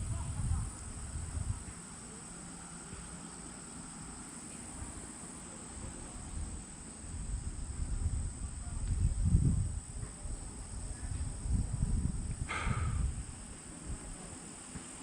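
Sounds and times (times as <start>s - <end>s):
wind buffeting microphone: 0.0s - 1.9s, 5.8s - 14.4s
crickets chirring: 0.0s - 15.0s.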